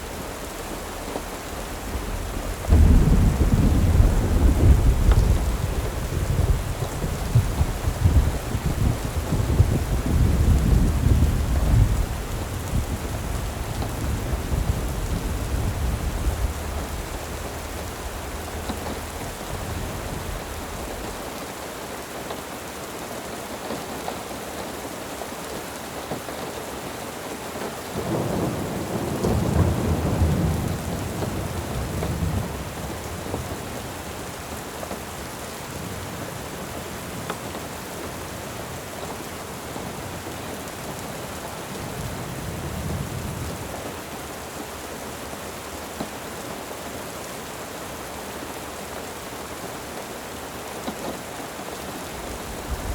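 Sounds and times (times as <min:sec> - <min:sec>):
rolling thunder: 0:00.0 - 0:21.3, 0:28.0 - 0:34.0, 0:52.0 - 0:52.9
rain hissing: 0:00.0 - 0:22.8, 0:27.8 - 0:52.9.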